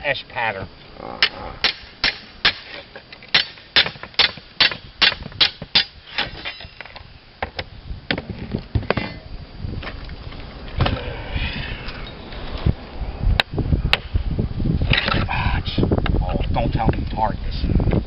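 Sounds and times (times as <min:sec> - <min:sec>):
hammer striking metal: 0:03.3 - 0:06.8
knocks and scrapes: 0:08.1 - 0:09.2.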